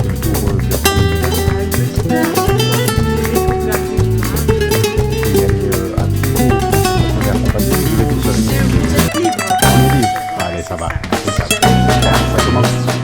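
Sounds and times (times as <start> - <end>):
bass line: 0.0 - 13.0
flamenco acoustic guitar: 0.0 - 13.0.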